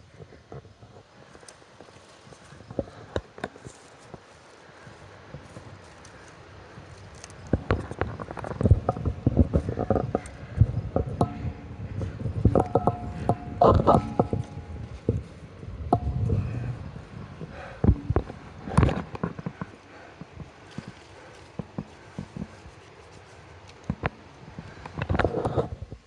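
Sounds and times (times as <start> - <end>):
footsteps on rock: 1.3 - 26.0
steady held tones: 8.5 - 19.5
low rumble: 8.7 - 19.2.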